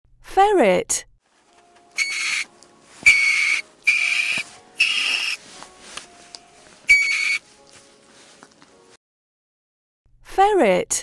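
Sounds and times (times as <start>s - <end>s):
ferret squeaking: 2.0s - 5.4s, 6.9s - 7.4s.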